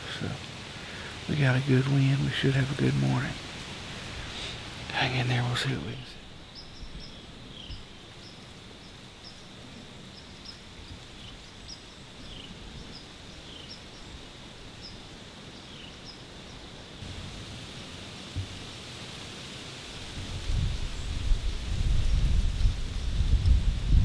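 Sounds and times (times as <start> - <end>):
steady background hiss: 0.0 - 24.0
faint bird chirps: 5.0 - 9.5.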